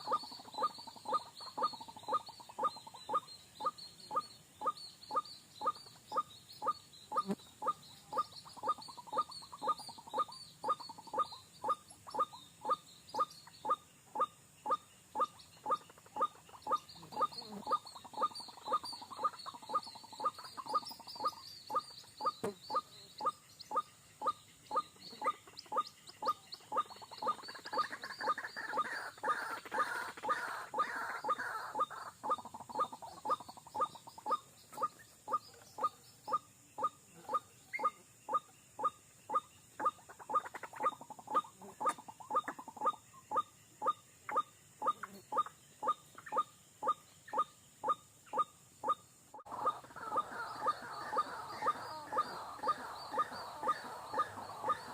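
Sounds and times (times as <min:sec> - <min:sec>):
waterhen croaking calls: 0:00.0 - 0:54.9.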